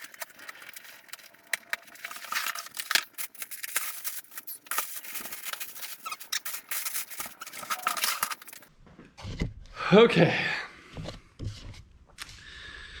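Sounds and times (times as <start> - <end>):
packaging rustling and scraping: 0.0 - 8.7.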